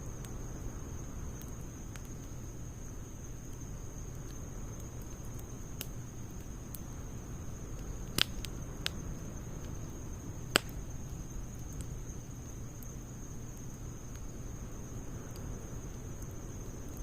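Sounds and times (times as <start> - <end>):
wood fire crackling: 0.0 - 17.0
loud fire pops: 7.6 - 12.0.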